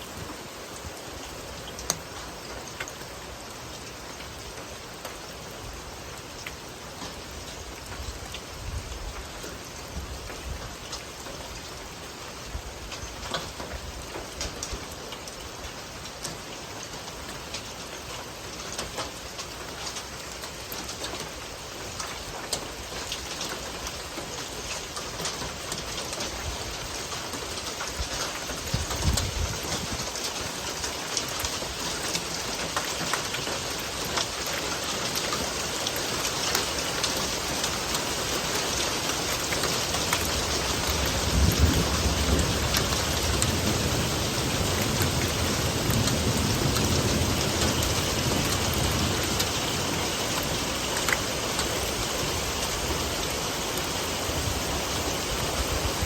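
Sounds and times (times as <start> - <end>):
steady rain falling: 0.0 - 56.0
low rumbles of thunder: 40.8 - 50.5.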